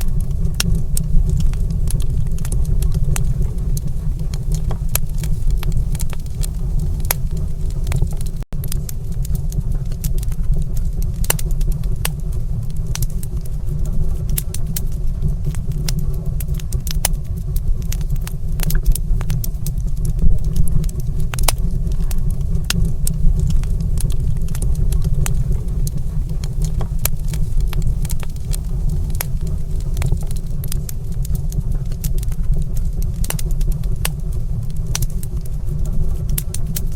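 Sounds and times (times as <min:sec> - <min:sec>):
low rumble: 0:00.0 - 0:36.9
wood fire crackling: 0:00.0 - 0:36.9.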